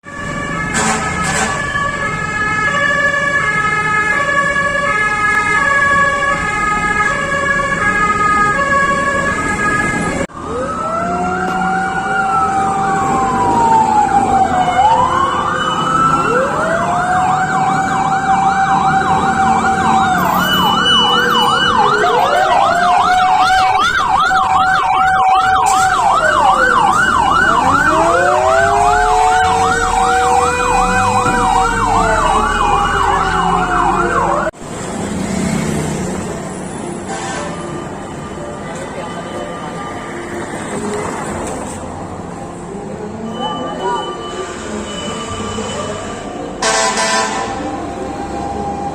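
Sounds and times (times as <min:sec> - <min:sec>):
fast yelp siren: 0:00.0 - 0:34.5
alternating-tone siren: 0:00.0 - 0:34.6
steady high siren tone: 0:00.0 - 0:34.6
wailing sirens: 0:00.0 - 0:34.6, 0:37.1 - 0:48.9.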